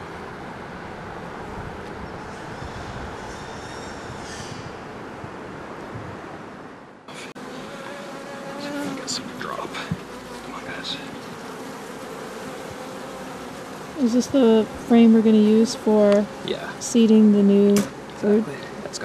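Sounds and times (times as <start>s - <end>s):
honeybees buzzing: 7.1s - 19.0s.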